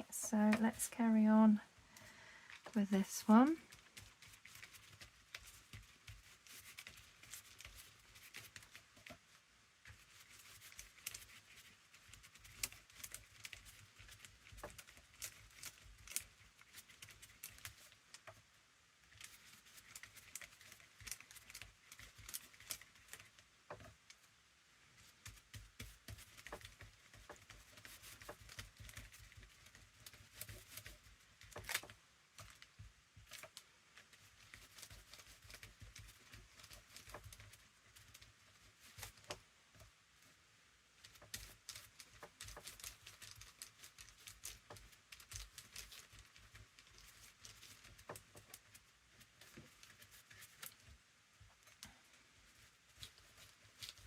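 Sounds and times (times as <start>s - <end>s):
brush on paper: 2.5s - 40.4s, 41.0s - 54.0s
small taps and clicks: 20.3s - 24.3s.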